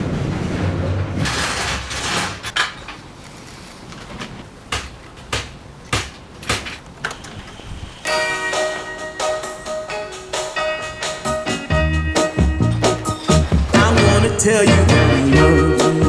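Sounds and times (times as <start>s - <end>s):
music: 8.1s - 16.0s.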